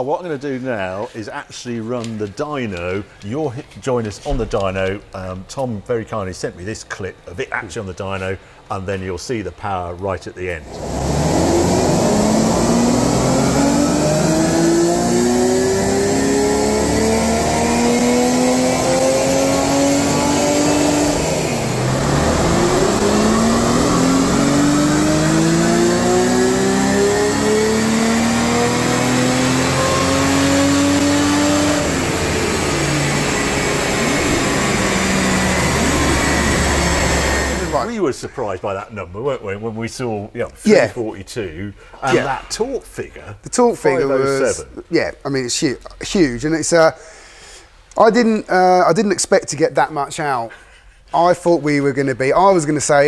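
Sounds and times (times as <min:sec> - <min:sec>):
car engine revving at full throttle: 0:10.6 - 0:37.9.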